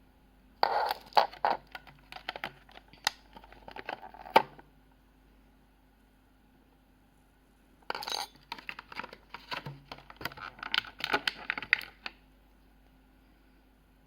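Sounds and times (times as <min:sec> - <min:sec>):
hard items clicking and clinking: 0:07.9 - 0:12.1
packaging rustling: 0:08.5 - 0:12.1.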